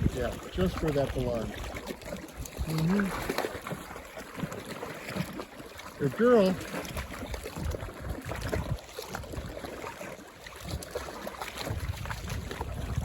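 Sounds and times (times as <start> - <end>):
wind rumble on microphone: 0.0 - 1.8, 6.8 - 9.7, 10.5 - 13.0
water lapping among rocks: 0.0 - 13.0.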